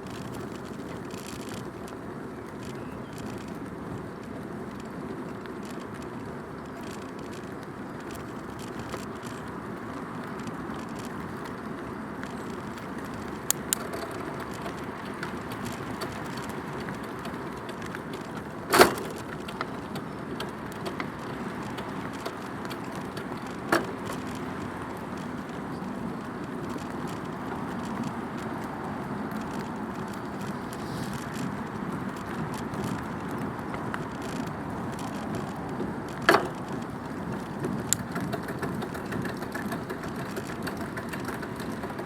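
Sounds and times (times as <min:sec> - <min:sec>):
bicycle tyre riding noise: 0:00.0 - 0:42.0
bicycle knocking over bump: 0:12.3 - 0:42.0.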